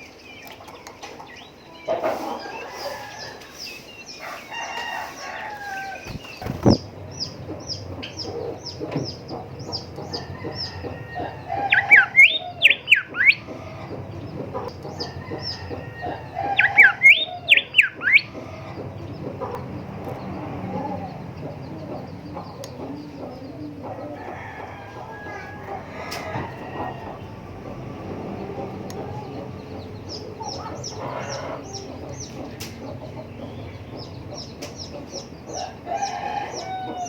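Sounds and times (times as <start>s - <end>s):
bird whistling song phrases: 11.6s - 13.4s.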